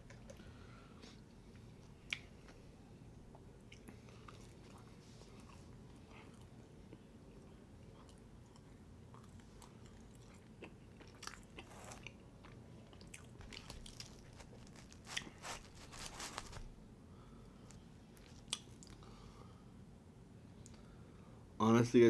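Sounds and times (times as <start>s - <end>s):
person chewing crunchy food: 7.9s - 16.8s, 17.7s - 19.0s.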